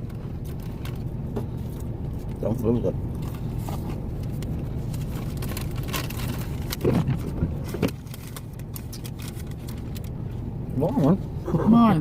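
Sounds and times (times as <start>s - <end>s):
truck engine and heater rumble: 0.0s - 12.0s.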